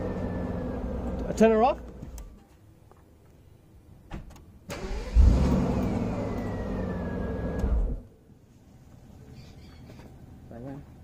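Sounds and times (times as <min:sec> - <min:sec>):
car engine starting and running: 0:00.0 - 0:02.3, 0:04.6 - 0:08.2.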